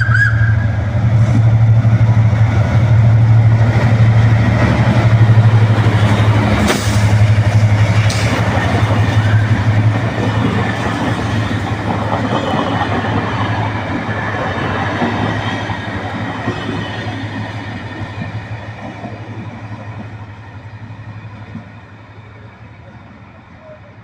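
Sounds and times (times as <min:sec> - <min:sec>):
train wheels clattering: 0:03.6 - 0:20.2.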